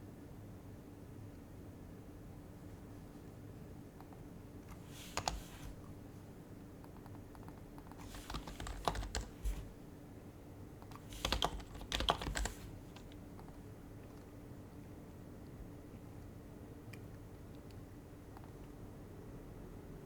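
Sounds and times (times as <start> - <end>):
typing on quiet keyboard: 4.0 - 5.8, 6.8 - 9.8, 10.8 - 14.4.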